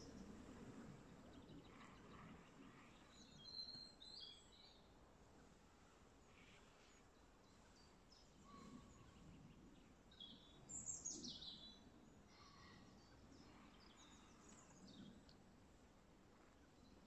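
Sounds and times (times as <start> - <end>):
faint bird chirps: 6.2 - 15.3.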